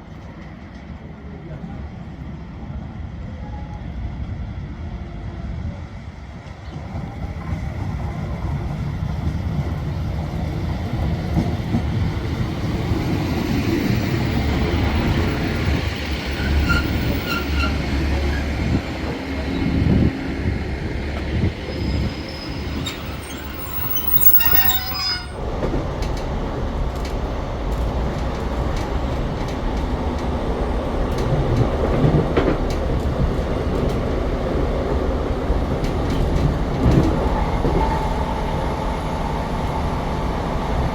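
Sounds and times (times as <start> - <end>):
train rumbling on rails: 0.0 - 40.9
train wheel squeal: 13.6 - 20.0, 21.2 - 25.4.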